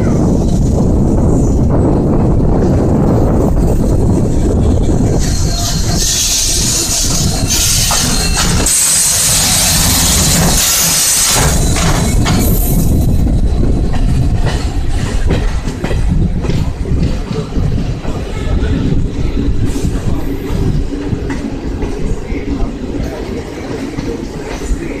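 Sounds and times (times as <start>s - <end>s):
train wheel and rail rumble: 0.0s - 25.0s
wheels clacking over rail joints: 2.6s - 25.0s.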